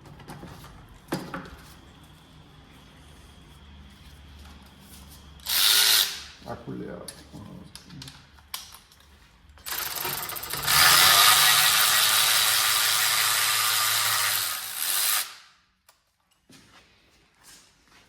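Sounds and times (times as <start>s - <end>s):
power tool ratcheting rattle: 5.4s - 6.2s, 9.6s - 15.4s.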